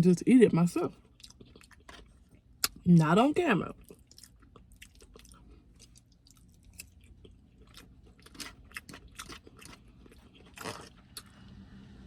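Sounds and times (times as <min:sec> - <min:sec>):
person chewing food: 0:01.0 - 0:02.8, 0:03.8 - 0:11.4.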